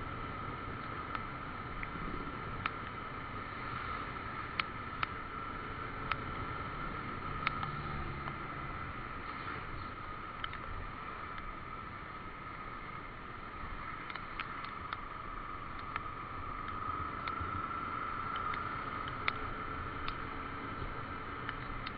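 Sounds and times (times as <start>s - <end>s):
motorcycle engine riding: 0.0s - 21.9s
sharp ticks: 0.8s - 2.0s, 2.6s - 3.0s, 4.4s - 5.2s, 6.0s - 6.4s, 7.3s - 8.4s, 10.3s - 10.7s, 13.9s - 20.3s, 21.3s - 21.9s.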